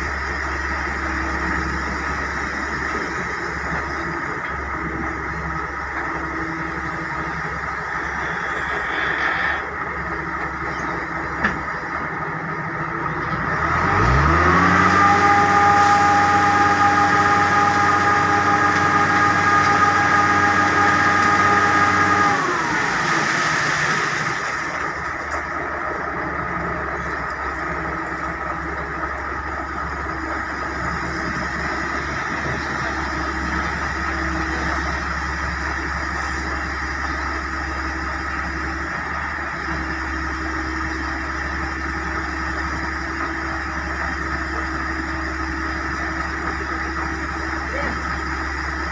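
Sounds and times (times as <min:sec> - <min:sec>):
heavy diesel engine revving: 0:00.0 - 0:48.9.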